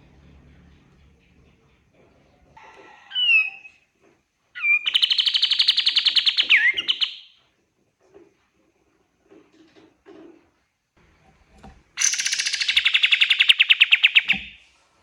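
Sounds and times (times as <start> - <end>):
songbird whistling and trilling: 3.1 - 3.8, 4.6 - 7.4, 12.0 - 14.6.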